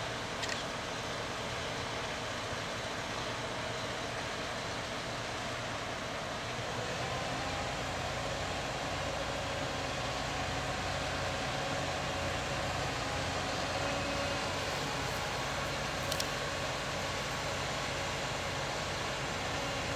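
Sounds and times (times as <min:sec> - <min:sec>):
faint steady hum: 0:07.7 - 0:19.9
machinery rumble: 0:07.7 - 0:19.9.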